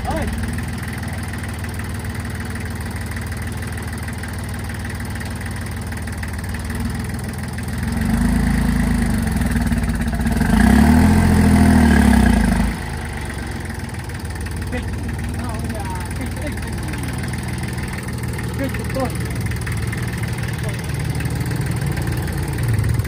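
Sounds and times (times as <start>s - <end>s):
tractor engine revving: 0.0s - 23.0s.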